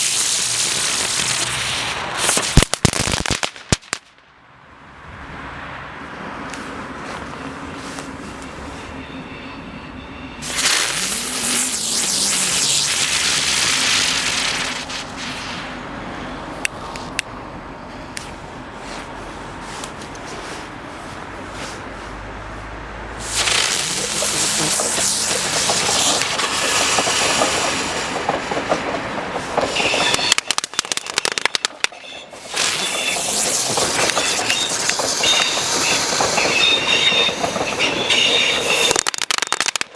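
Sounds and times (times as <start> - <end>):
firework hissing rush: 0.0 - 4.0, 10.4 - 16.2, 23.2 - 28.7, 29.5 - 39.9.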